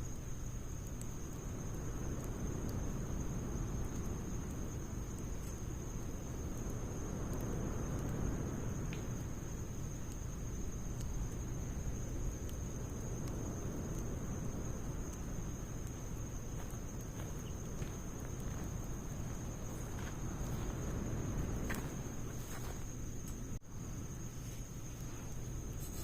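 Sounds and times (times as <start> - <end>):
high-pitched insect trill: 0.0 - 26.0
low fire rumble: 0.0 - 26.0
wood fire crackling: 0.0 - 26.0.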